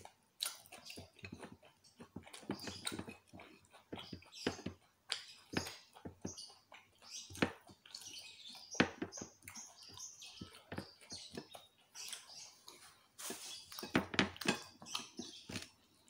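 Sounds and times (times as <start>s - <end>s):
chewing and lip-smacking: 0.0s - 16.0s
fingers picking food from plate: 0.0s - 16.0s.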